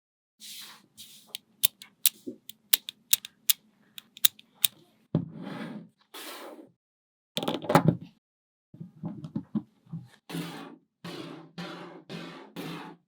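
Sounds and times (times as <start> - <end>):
magnetic balls rattling: 1.6 - 4.4
magnetic balls clicking together: 1.6 - 4.7.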